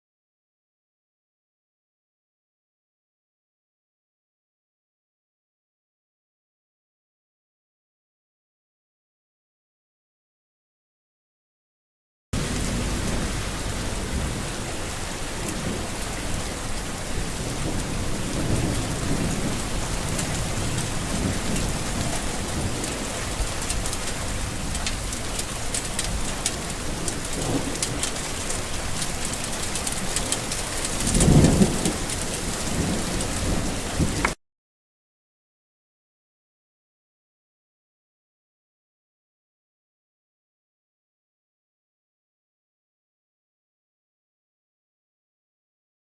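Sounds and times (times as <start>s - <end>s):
distant thunder rolling: 12.4s - 34.4s
heavy rain in a forest: 12.4s - 34.4s.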